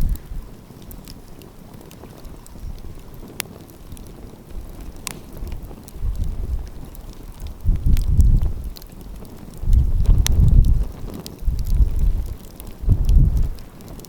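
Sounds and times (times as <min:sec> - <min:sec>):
sharp fire pops: 0:00.0 - 0:14.0
wind rumble on microphone: 0:00.0 - 0:14.0
wood fire crackling: 0:00.0 - 0:14.0.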